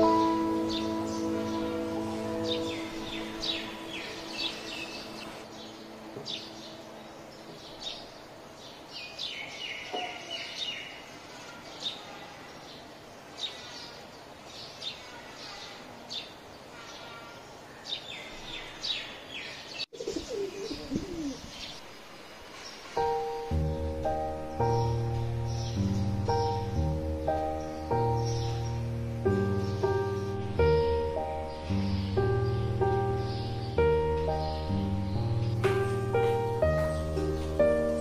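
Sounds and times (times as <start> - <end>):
small birds chirping: 0.0 - 38.0
low gliding bird calls: 20.0 - 23.4.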